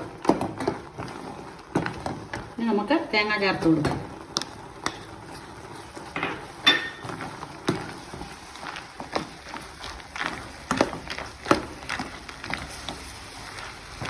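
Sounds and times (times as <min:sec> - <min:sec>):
spoon scraping in a pan: 0:04.4 - 0:14.0.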